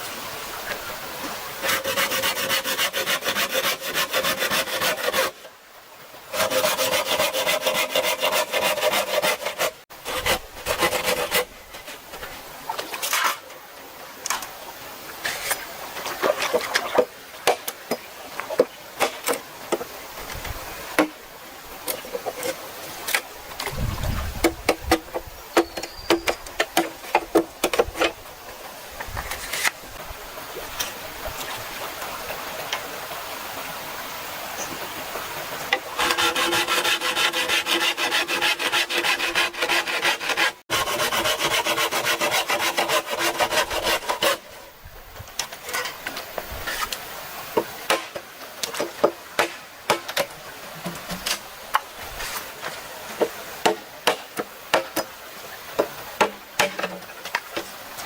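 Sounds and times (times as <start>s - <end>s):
sawing or scraping bamboo: 1.6s - 5.5s, 6.3s - 13.5s, 15.2s - 17.6s, 29.1s - 29.8s, 35.7s - 44.7s, 45.5s - 47.0s, 52.0s - 52.7s
taps and knocks on bamboo: 21.0s - 21.2s, 24.4s - 28.2s, 47.6s - 51.9s, 53.2s - 55.1s, 55.8s - 57.7s.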